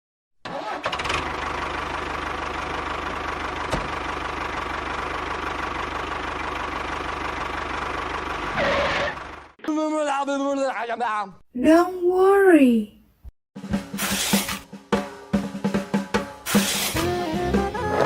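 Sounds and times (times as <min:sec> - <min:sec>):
tractor engine idling: 0:01.2 - 0:08.6.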